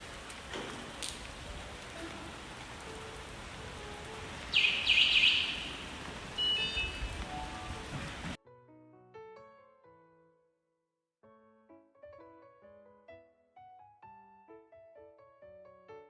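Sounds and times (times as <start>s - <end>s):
steady rain falling: 0.0s - 8.4s.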